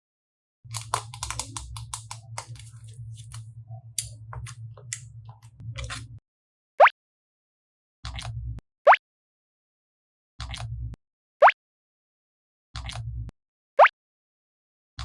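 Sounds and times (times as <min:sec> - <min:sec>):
slime clicking and crackling: 0:00.7 - 0:03.4
low hum: 0:00.7 - 0:06.2.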